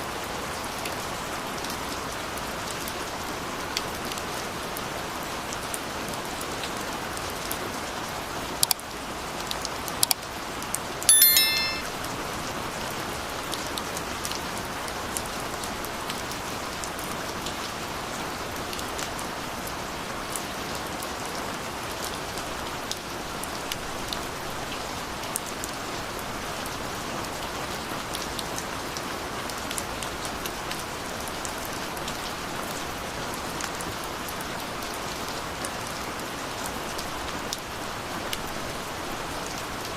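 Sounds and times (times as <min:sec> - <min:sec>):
ringing pitched clink: 0:11.1 - 0:11.9.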